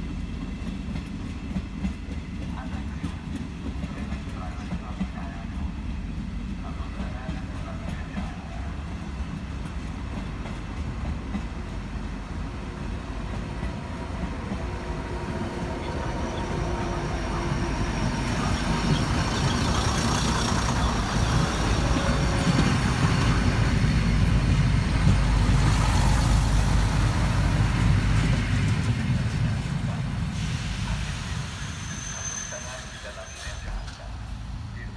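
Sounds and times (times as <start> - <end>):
train rumble and wheel noise: 0.0 - 34.9.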